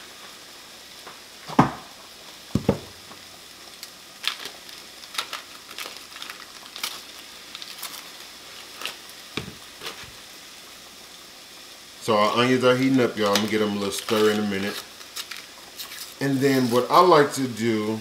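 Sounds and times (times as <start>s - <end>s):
onions sizzling in a pan: 0.0s - 18.0s
loud thumps: 2.5s - 3.0s
paper wrapper crinkling: 3.8s - 10.2s, 13.0s - 17.0s.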